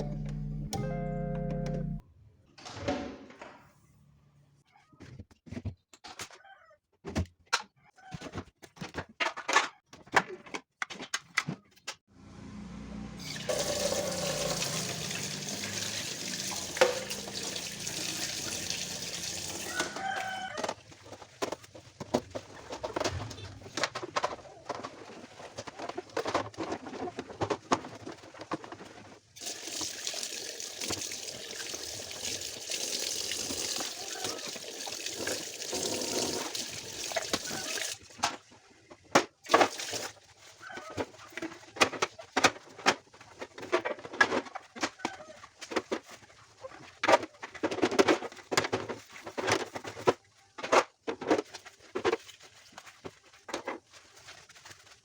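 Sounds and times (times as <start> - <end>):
clicks and knocks of handling: 7.1 - 12.0
water running: 13.2 - 20.0, 29.4 - 38.0, 39.5 - 40.2.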